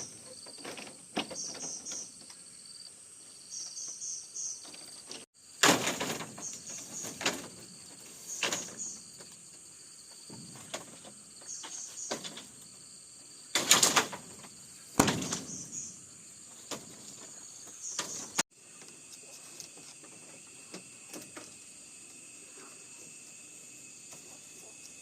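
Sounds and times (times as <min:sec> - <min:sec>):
insects chirring: 0:00.0 - 0:25.0
sharp knocks: 0:15.0 - 0:15.9.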